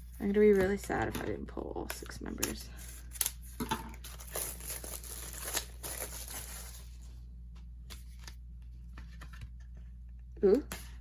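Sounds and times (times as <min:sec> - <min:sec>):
packaging crinkling and tearing: 0:04.0 - 0:07.0.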